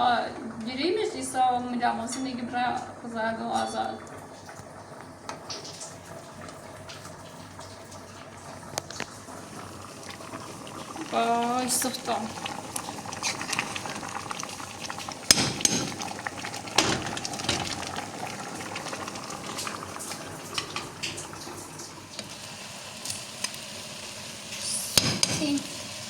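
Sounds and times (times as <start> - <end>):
food sizzling: 0.0 - 26.0
utensils clinking against pots: 2.0 - 2.8, 15.2 - 16.2, 16.8 - 18.0, 20.5 - 21.4, 24.9 - 25.7.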